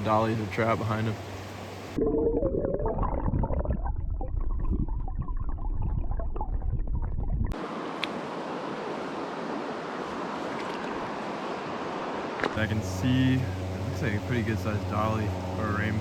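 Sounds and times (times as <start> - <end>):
muffled low rumbling and gurgling: 0.0 - 7.6, 12.5 - 16.0.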